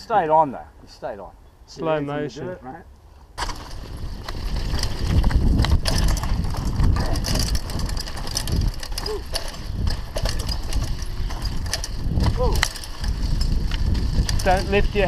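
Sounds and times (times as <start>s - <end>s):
bike rattles and knocks: 3.4s - 15.0s
bike tyres rumbling on dirt: 3.4s - 15.0s.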